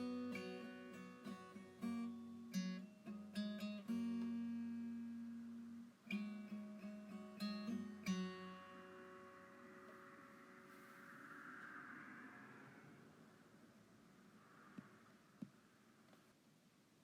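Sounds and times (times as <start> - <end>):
acoustic guitar chords: 0.0 - 11.0.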